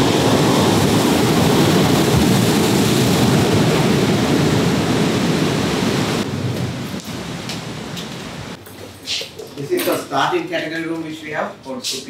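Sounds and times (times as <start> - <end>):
ocean surf breaking: 0.0 - 8.6
wind rumbling on microphone: 0.0 - 9.6.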